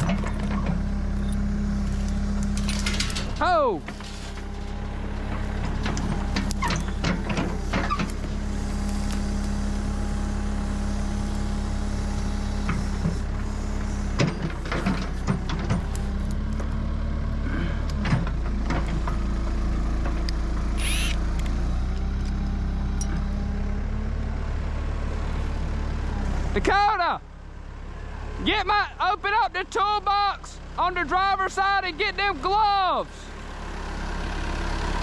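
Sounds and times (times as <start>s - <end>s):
backhoe engine idling: 0.0s - 35.0s
brief high squeal: 20.8s - 21.2s.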